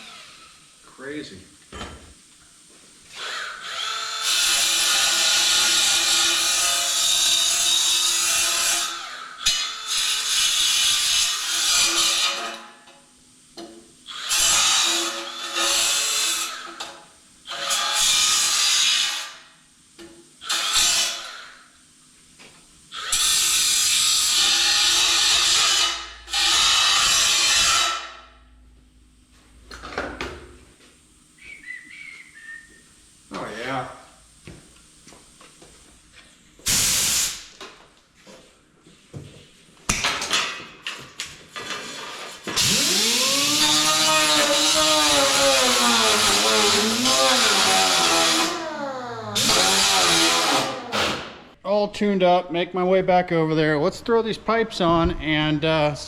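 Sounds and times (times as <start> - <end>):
power tool whining: 42.5 - 51.3.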